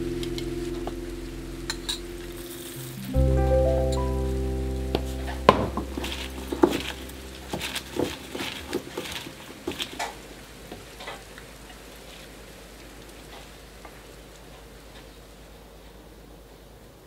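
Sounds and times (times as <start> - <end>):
food squishing and rustling in a bowl: 5.8 - 12.6.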